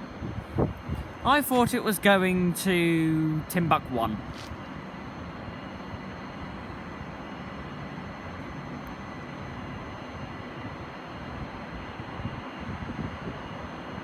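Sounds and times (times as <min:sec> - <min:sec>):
low rumble and hiss: 0:00.0 - 0:10.8.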